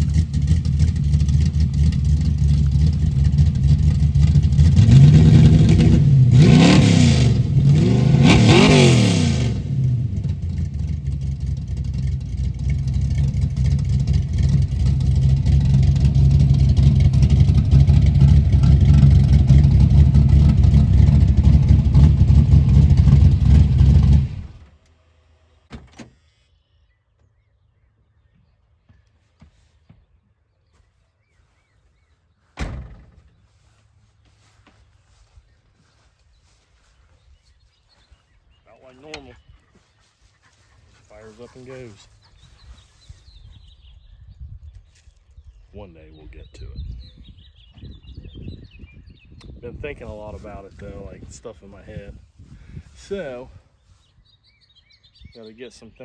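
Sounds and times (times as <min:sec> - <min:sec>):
car engine idling and revving: 0:00.0 - 0:25.7.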